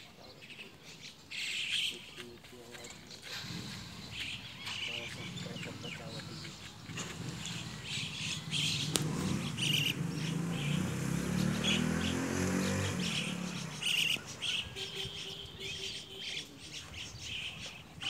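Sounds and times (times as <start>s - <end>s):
small birds chirping: 0.0s - 18.0s
low drone rising in pitch: 5.2s - 13.8s.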